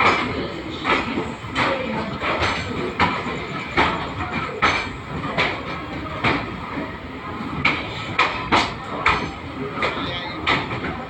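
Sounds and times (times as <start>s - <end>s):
train rumble: 0.0s - 11.0s
train wheels clacking on track: 0.0s - 11.0s.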